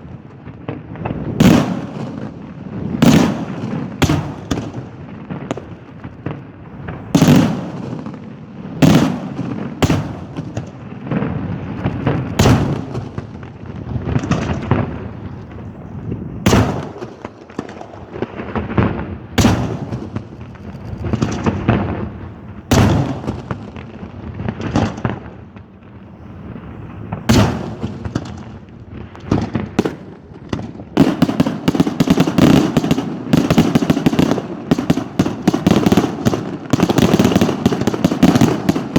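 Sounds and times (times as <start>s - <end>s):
firework shells bursting: 0.7s - 25.7s, 26.7s - 38.9s.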